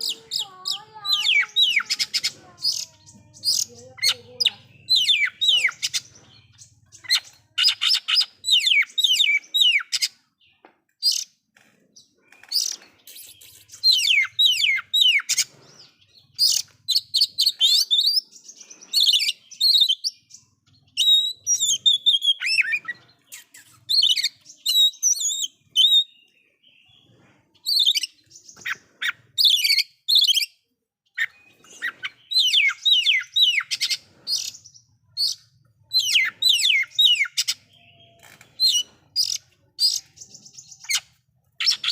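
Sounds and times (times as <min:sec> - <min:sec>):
bird singing whistled notes: 0:19.0 - 0:26.4.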